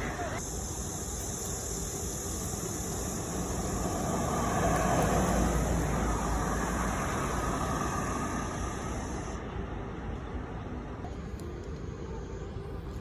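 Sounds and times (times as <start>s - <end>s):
high-pitched hiss: 0.0s - 9.4s
vehicle passing: 3.0s - 10.0s.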